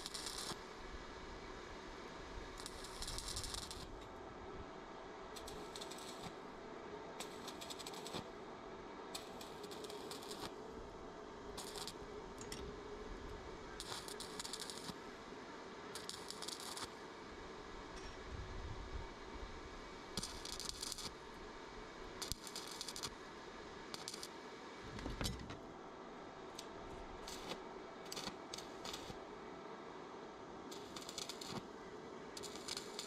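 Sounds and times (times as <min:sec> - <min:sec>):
electric arc welding crackling: 0:00.0 - 0:00.6, 0:02.6 - 0:04.0, 0:05.4 - 0:06.4, 0:07.2 - 0:08.3, 0:09.2 - 0:10.6, 0:11.6 - 0:12.1, 0:13.8 - 0:15.0, 0:16.0 - 0:17.0, 0:20.2 - 0:21.2, 0:22.2 - 0:23.2, 0:23.9 - 0:24.4, 0:26.6 - 0:29.2, 0:30.7 - 0:31.7, 0:32.4 - 0:33.0.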